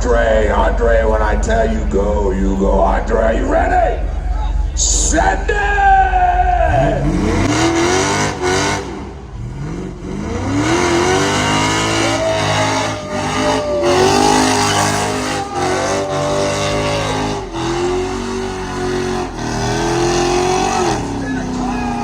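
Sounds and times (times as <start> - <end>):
tire noise rushing: 0.0 - 22.0
car engine revving hard: 6.6 - 22.0.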